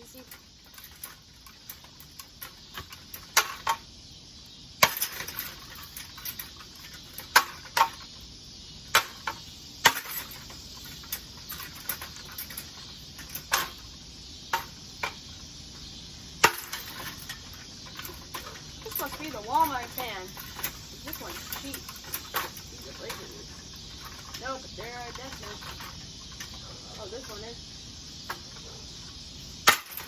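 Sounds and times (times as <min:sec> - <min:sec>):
ceiling fan being beaten apart: 0:00.7 - 0:03.8, 0:04.8 - 0:08.1, 0:08.9 - 0:13.8, 0:16.4 - 0:20.8, 0:29.6 - 0:30.0.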